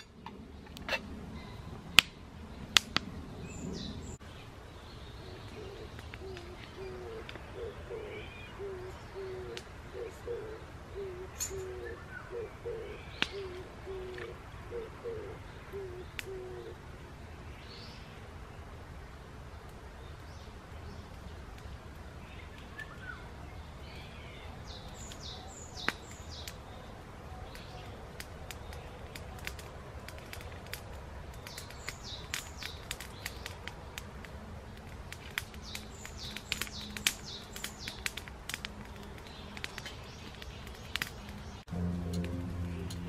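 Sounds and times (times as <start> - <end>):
campfire crackling: 0.0 - 11.9, 18.2 - 43.0
outdoor hush: 0.0 - 18.7.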